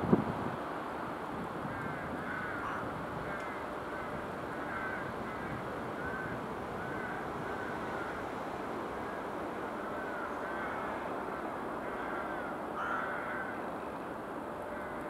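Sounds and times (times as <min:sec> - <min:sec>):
train rolling rumble: 0:00.0 - 0:15.0.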